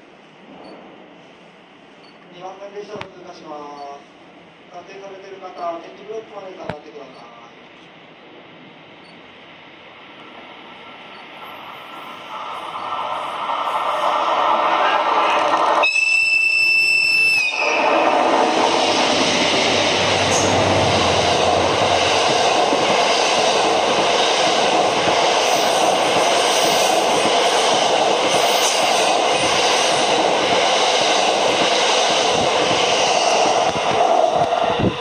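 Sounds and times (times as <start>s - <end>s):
train passing at speed: 0.0s - 35.0s
locomotive whistle: 15.8s - 18.3s.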